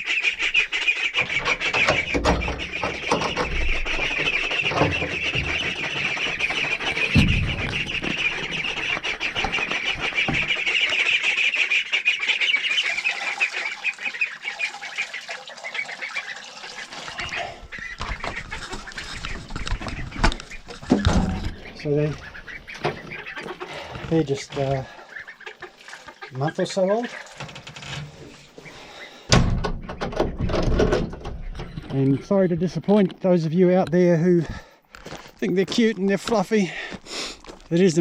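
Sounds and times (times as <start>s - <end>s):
ducklings peeping: 0.0s - 27.4s, 28.2s - 34.3s
low thumps: 1.8s - 8.8s.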